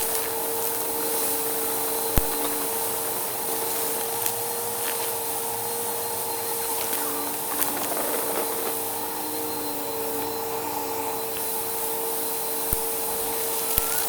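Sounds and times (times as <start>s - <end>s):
debris ticks being sucked up: 0.0s - 5.4s, 6.6s - 10.3s
vacuum cleaner running: 0.0s - 14.0s.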